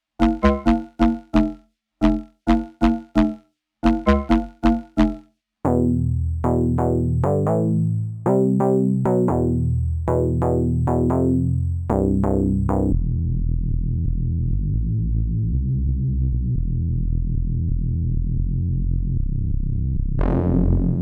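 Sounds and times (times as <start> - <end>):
buzzy synth bass pulsing: 0.2 - 13.0
synthesizer melodic phrase: 0.2 - 13.0.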